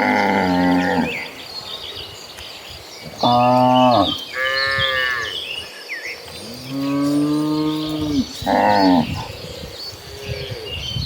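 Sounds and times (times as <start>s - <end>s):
cows mooing: 0.0s - 1.2s, 3.2s - 5.4s, 6.4s - 9.3s
birds chirping: 0.0s - 11.0s.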